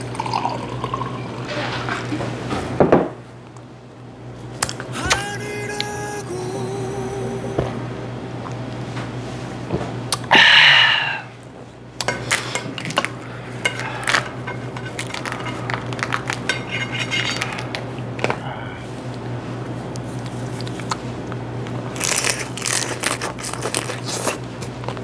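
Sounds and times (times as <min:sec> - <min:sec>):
dishes clinking: 0:12.0 - 0:15.8, 0:16.4 - 0:17.6
crab shell crunching and snapping: 0:22.0 - 0:25.0.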